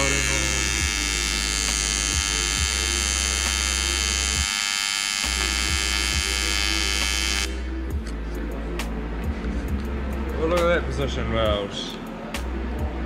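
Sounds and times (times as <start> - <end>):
welding arc buzzing: 0.0 - 7.7.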